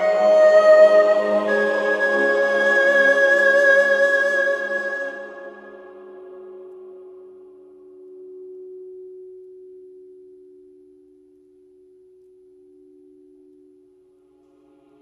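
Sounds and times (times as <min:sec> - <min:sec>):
sustained ringing meditation tone: 0:05.7 - 0:15.0.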